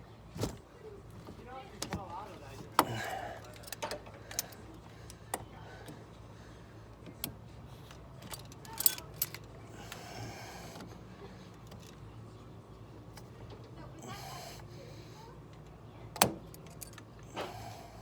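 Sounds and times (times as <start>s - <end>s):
plastic and metal parts clicking: 1.2s - 6.0s, 7.1s - 9.5s.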